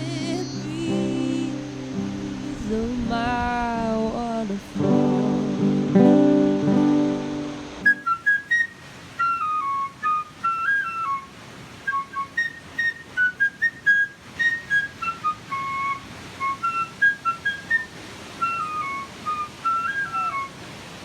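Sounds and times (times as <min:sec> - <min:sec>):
faint hiss: 0:00.0 - 0:21.0
whistled melody: 0:04.8 - 0:20.7.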